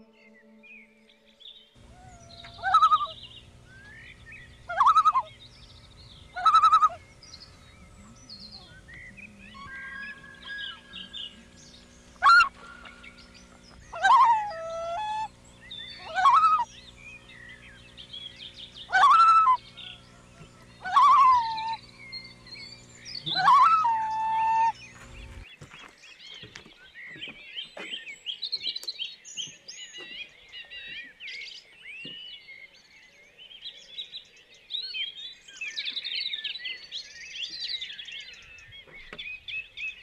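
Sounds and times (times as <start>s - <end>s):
soft bird chirps: 0.0s - 40.0s
large bird calling loudly: 1.8s - 25.5s.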